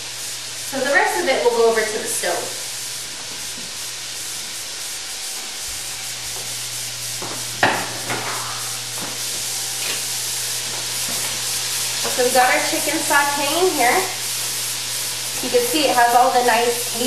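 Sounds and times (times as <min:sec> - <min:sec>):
chicken sizzling in a frying pan: 0:00.0 - 0:17.0
knocks on a pan: 0:07.6 - 0:08.4.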